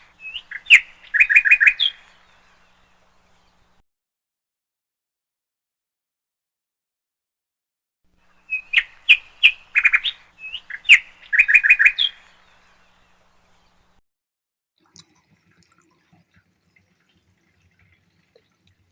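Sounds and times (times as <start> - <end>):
faint clicks: 14.8 - 18.9.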